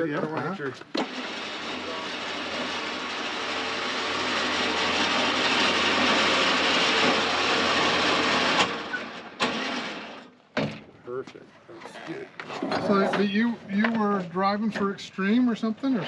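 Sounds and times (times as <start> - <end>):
hook lift motor running: 0.9 - 10.3.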